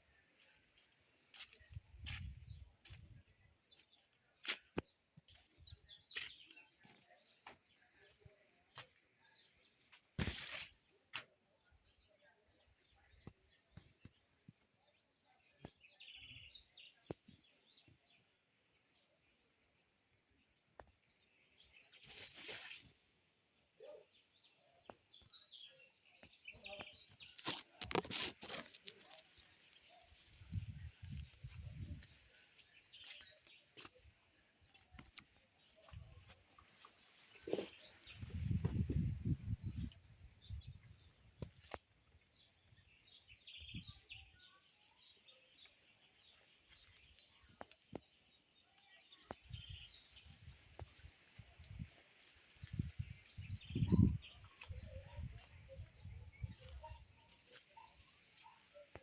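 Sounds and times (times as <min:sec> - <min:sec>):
birds chirping: 0:23.8 - 0:59.0.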